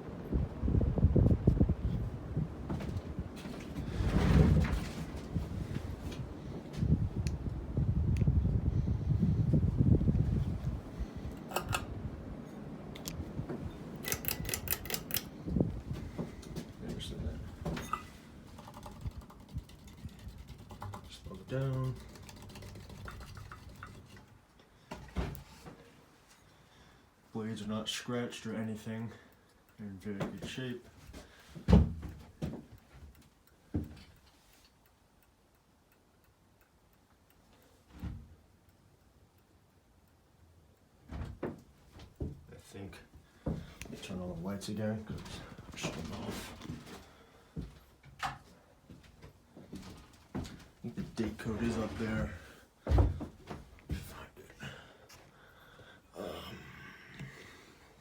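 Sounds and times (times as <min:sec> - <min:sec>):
ceiling fan air rush: 0:00.0 - 0:32.2
sharp clicks: 0:14.0 - 0:15.3
faint regular ticking: 0:14.0 - 0:15.4, 0:27.2 - 0:31.5, 0:32.1 - 0:41.0
dull thumps: 0:52.8 - 0:54.2.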